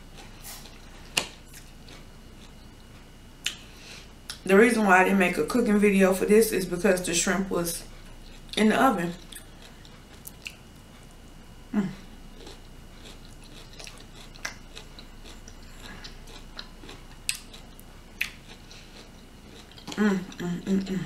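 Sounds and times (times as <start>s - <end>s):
person chewing food: 0.0s - 4.4s, 7.9s - 8.6s, 9.2s - 11.2s, 12.1s - 21.0s
person humming: 11.7s - 12.1s, 19.9s - 21.0s.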